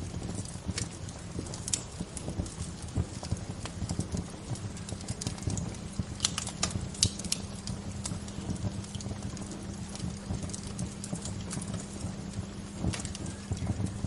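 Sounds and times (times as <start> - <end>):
low steady rumble: 0.0 - 14.0
wood fire crackling: 0.0 - 14.0.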